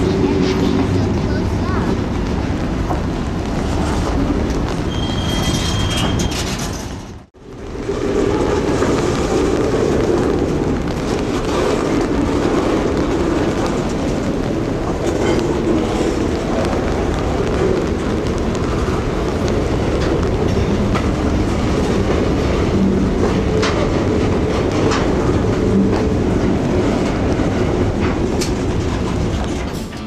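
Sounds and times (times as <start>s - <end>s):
freight cars rolling past: 0.0s - 30.0s
high wheel squeal: 4.8s - 6.9s.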